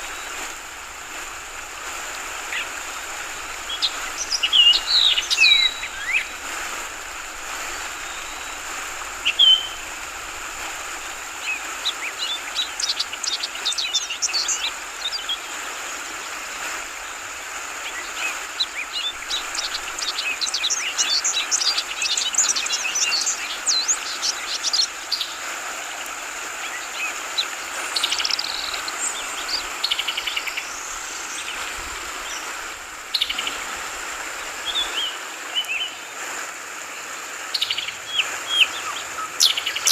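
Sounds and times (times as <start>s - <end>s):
birds chirping: 0.0s - 15.4s, 26.6s - 36.1s, 37.5s - 39.9s
flowing water: 0.0s - 39.9s.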